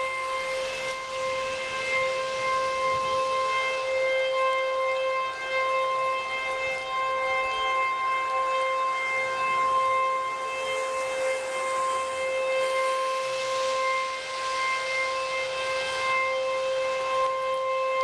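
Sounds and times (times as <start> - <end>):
warning siren steady tone: 0.0 - 18.0.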